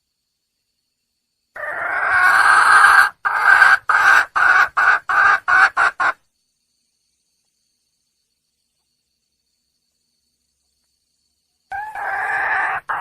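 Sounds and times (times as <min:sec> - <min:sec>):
junglefowl hen calling: 0:01.6 - 0:06.2, 0:11.7 - 0:13.0.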